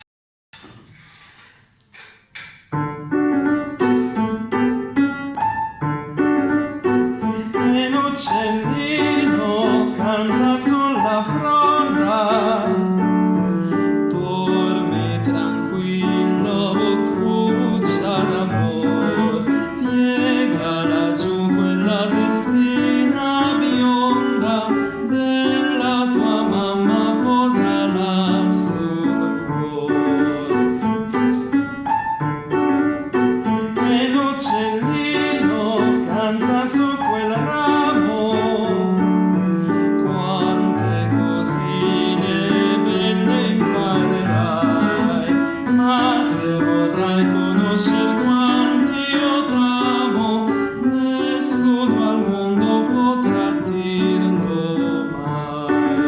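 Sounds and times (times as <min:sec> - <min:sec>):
piano accompaniment: 0:00.6 - 0:56.0
tenor singing: 0:06.5 - 0:56.0.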